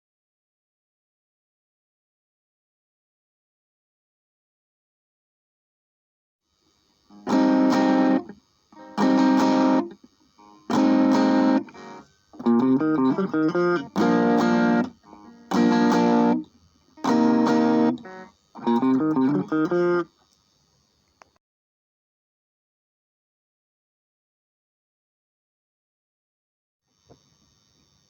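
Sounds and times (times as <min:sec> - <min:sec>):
electric guitar chords strummed: 0:07.1 - 0:20.1
electric guitar picked notes: 0:07.2 - 0:20.1.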